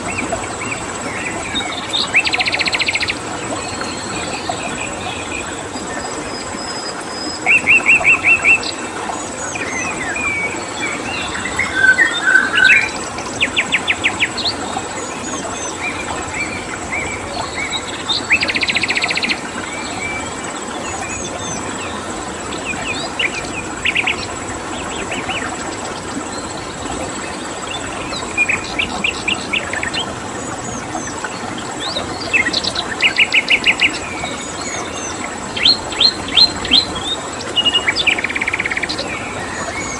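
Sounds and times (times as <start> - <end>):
crickets chirring: 0.0 - 39.9
flowing water: 0.0 - 39.9
songbirds singing: 0.0 - 39.9
buzzy bird trill: 10.9 - 13.0, 32.9 - 35.2, 39.5 - 39.9.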